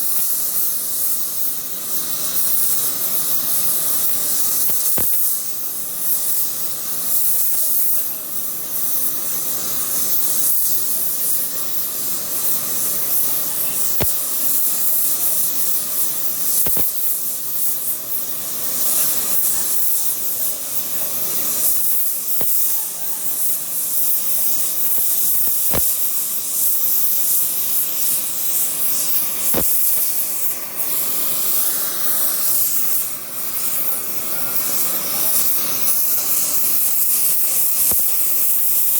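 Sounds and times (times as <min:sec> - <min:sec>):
welding arc hissing: 0:00.0 - 0:38.9
sharp clicks: 0:04.7 - 0:05.2, 0:16.6 - 0:16.9, 0:25.4 - 0:26.0, 0:29.5 - 0:30.2.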